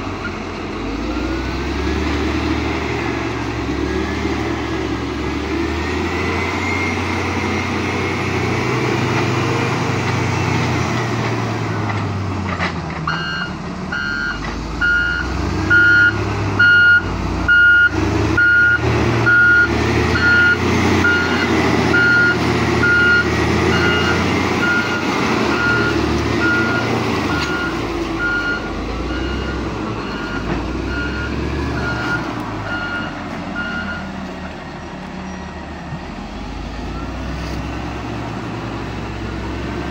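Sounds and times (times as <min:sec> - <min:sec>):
diesel truck engine running: 0:00.0 - 0:39.9
reversing alarm beeping: 0:13.1 - 0:34.1.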